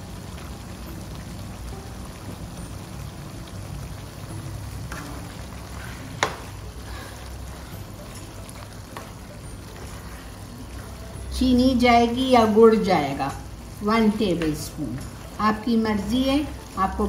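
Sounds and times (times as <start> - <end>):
food sizzling in a pan: 0.0 - 17.0
wooden spatula stirring: 4.8 - 11.0.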